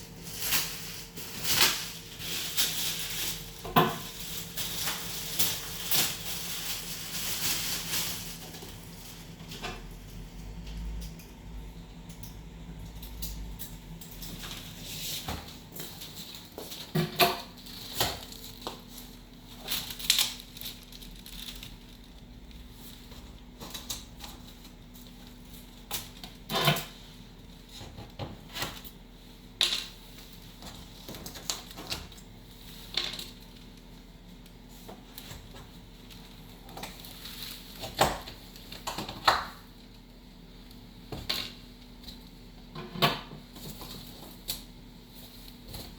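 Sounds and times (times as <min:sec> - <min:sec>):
packaging being handled and opened: 0:00.0 - 0:09.6, 0:14.3 - 0:27.0, 0:27.6 - 0:39.8
faint steady hum: 0:00.0 - 0:45.9.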